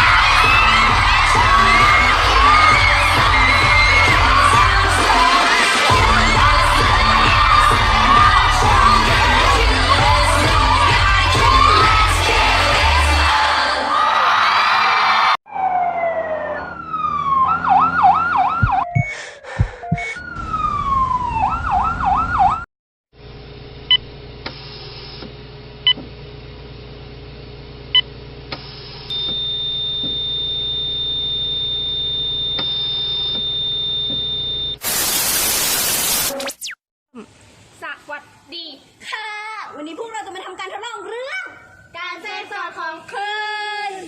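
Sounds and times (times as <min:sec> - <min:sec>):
siren wailing and yelping: 0:15.5 - 0:22.7.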